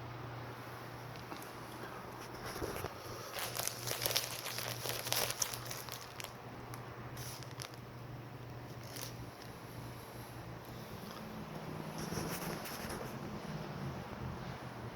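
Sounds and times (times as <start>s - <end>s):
steady low hum: 0.0s - 14.9s
crinkling handling noise: 1.0s - 7.9s, 8.5s - 9.6s, 10.6s - 13.4s.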